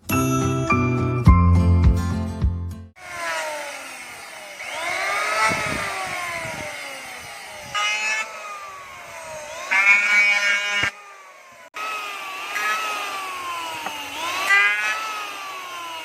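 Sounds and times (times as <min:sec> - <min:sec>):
power tool motor whine: 0:03.0 - 0:16.0.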